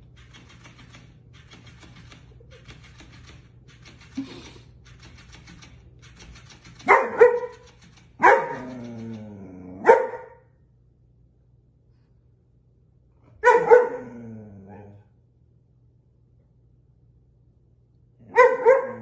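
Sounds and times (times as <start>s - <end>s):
dog barking: 6.8s - 8.8s, 9.8s - 10.5s, 13.4s - 14.2s, 18.2s - 19.0s.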